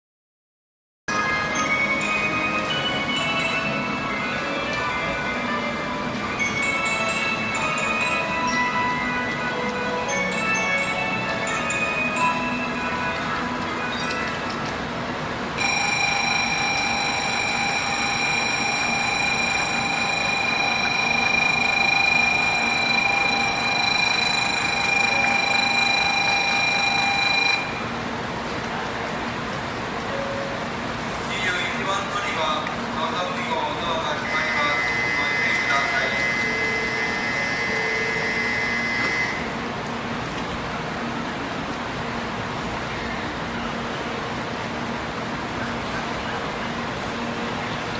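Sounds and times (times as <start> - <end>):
electronic warning bell tone: 15.6 - 28.0, 33.8 - 39.6.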